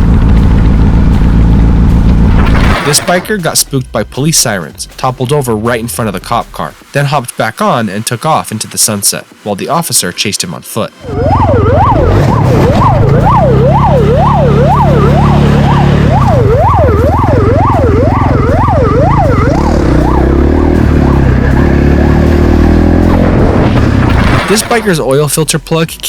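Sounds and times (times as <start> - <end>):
vehicle engine running loudly: 0.0 - 2.8, 11.1 - 24.9
police siren yelping: 11.0 - 22.0.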